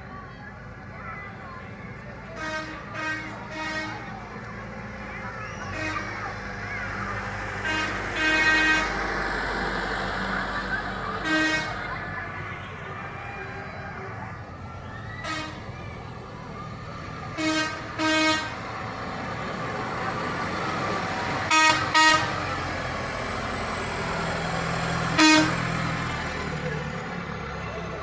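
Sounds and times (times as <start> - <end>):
engines rumbling: 0.0 - 28.0
tractor horn toots: 2.4 - 4.1, 5.5 - 6.3, 7.6 - 9.0, 11.2 - 12.0, 15.2 - 15.7, 17.4 - 18.6, 21.5 - 22.4, 25.2 - 25.8.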